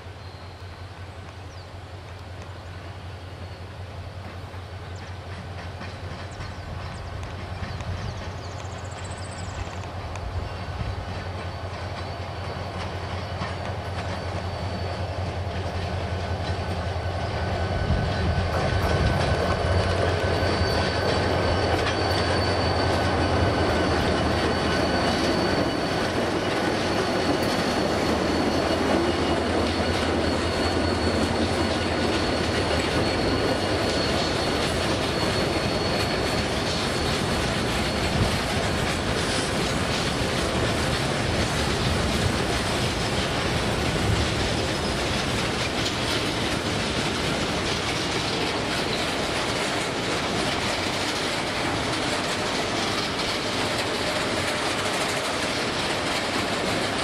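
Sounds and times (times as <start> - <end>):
locomotive engines rumbling: 0.0 - 57.0
wheels clattering over rail joints: 4.2 - 57.0
high-pitched wheel squeal: 8.8 - 16.0, 16.9 - 43.2.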